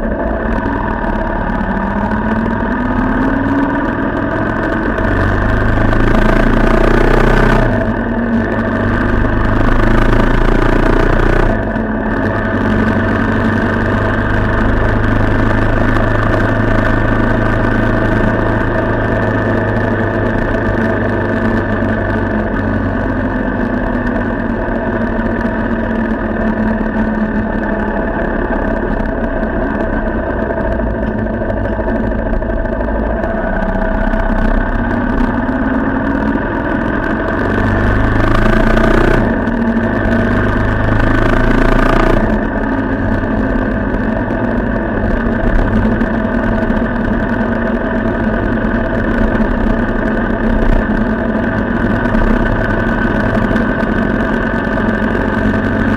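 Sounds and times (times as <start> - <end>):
vehicle engine running: 0.0 - 55.9.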